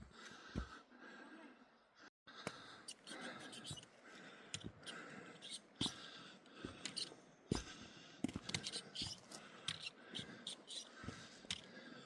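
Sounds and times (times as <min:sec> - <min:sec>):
footsteps on rocky trail: 0:05.8 - 0:10.3, 0:11.0 - 0:11.6.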